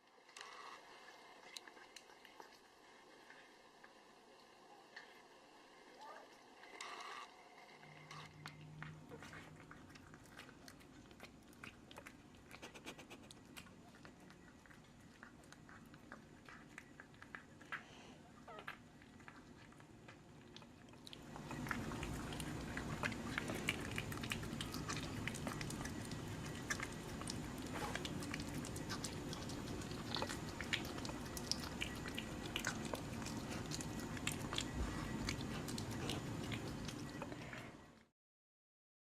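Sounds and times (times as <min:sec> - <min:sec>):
pet chewing crunchy food: 0:00.4 - 0:38.1.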